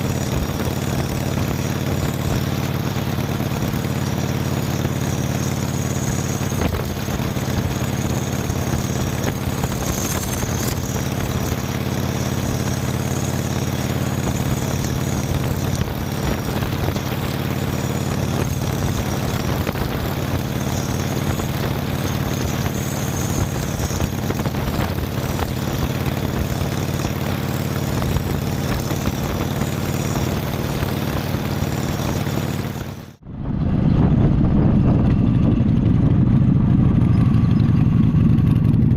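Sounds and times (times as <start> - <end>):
motorcycle engine running: 0.0 - 38.9
wind noise: 14.3 - 31.4, 32.6 - 38.9
low rumble: 33.0 - 38.9.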